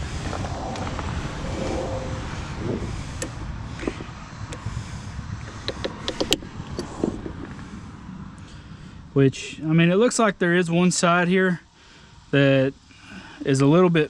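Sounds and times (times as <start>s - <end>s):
low rumbling handling noise: 0.0s - 4.7s.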